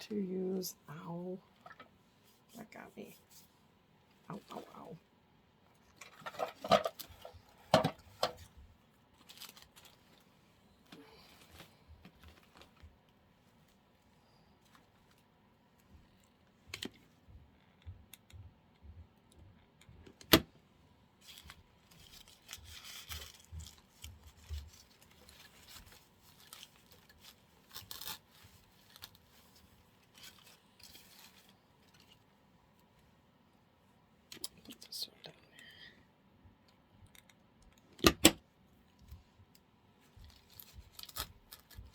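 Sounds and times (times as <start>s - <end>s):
plastic greenery rustling: 5.9s - 15.3s, 21.2s - 32.3s, 40.1s - 41.9s.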